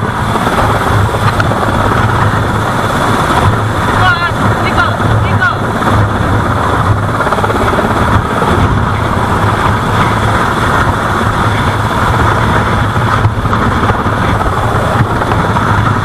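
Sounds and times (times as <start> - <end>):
loud engine running: 0.0 - 16.0.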